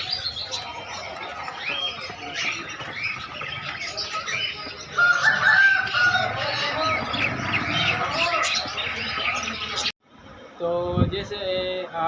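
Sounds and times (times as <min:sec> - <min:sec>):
small birds chirping: 0:00.0 - 0:10.0
rooster crowing: 0:04.9 - 0:07.2.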